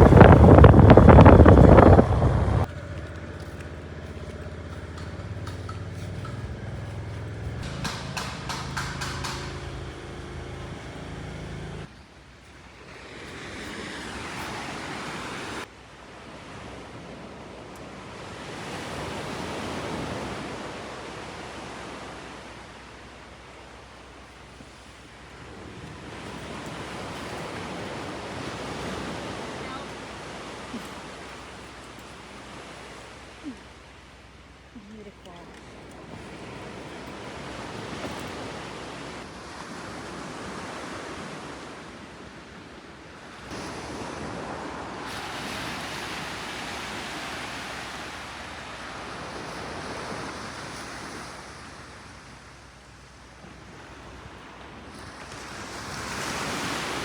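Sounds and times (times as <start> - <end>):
wind on microphone: 0.0 - 2.8
waves washing in: 0.0 - 11.9, 12.5 - 34.7, 35.5 - 57.0
steady low hum: 0.0 - 12.0.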